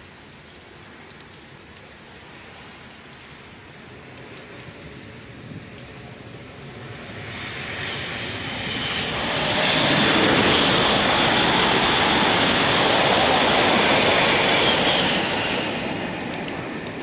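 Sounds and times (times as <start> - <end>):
high-speed train rushing roar: 6.1 - 17.0.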